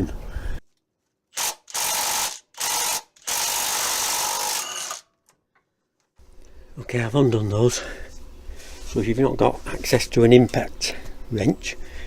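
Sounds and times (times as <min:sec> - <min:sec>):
impact wrench hammering: 0:01.4 - 0:05.0.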